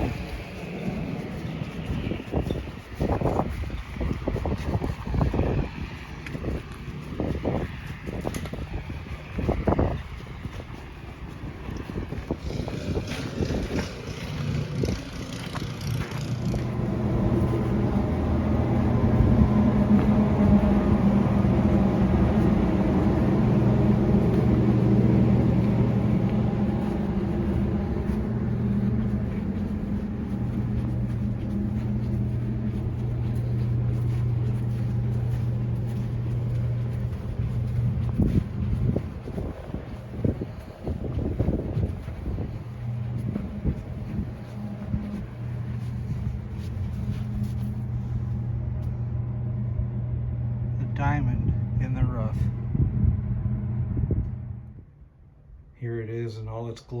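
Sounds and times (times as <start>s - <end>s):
wind noise: 0.0s - 48.6s, 50.9s - 55.1s
vehicle engine running: 0.0s - 55.2s.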